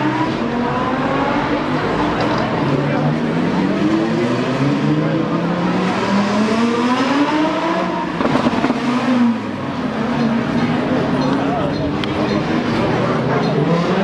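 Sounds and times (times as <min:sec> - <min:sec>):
supercar engine accelerating: 0:00.0 - 0:14.0
sharp cracks: 0:08.2 - 0:08.8.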